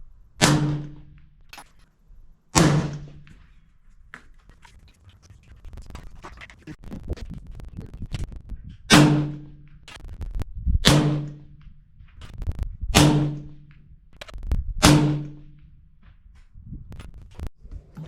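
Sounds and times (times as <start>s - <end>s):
suppressed rifle shots: 0.4s - 1.2s, 2.6s - 3.4s, 8.9s - 10.0s, 10.8s - 11.6s, 12.9s - 13.7s, 14.8s - 15.5s.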